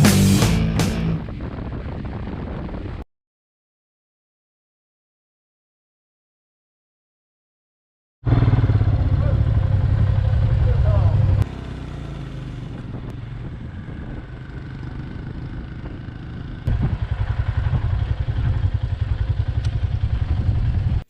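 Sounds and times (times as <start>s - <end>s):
motorcycle engine running: 0.0s - 3.0s, 8.2s - 21.0s.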